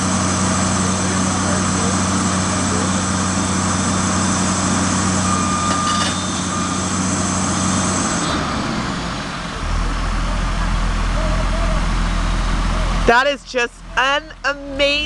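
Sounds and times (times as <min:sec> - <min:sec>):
diesel engine of heavy machinery: 0:00.0 - 0:15.0
short high beep: 0:05.2 - 0:06.8.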